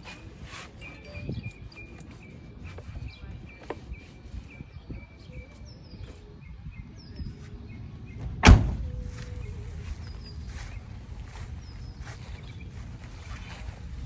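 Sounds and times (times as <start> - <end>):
small birds chirping: 0.0 - 14.0
low outdoor rumble: 6.5 - 14.0.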